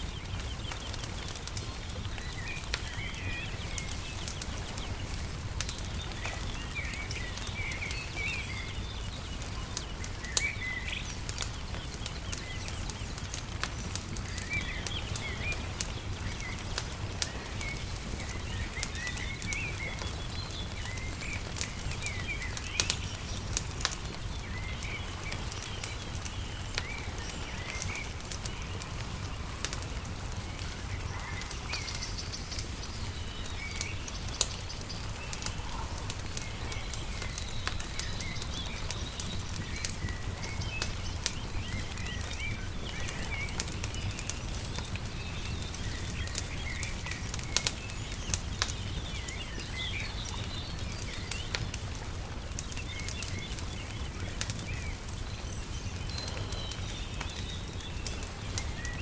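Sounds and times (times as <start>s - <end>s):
small birds chirping: 0.0s - 59.0s
wood fire crackling: 0.0s - 59.0s.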